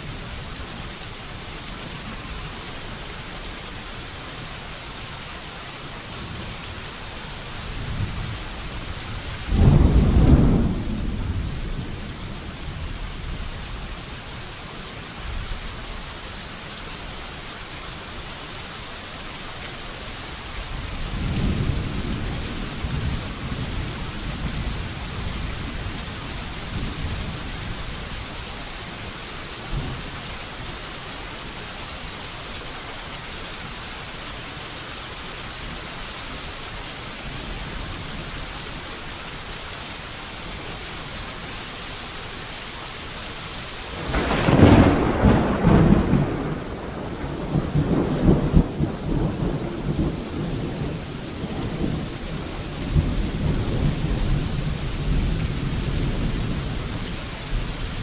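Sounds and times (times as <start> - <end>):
steady rain falling: 0.0 - 58.0
rolling thunder rumble: 7.8 - 13.0, 44.0 - 56.8
loud thunderclap: 9.5 - 12.1, 44.0 - 52.0.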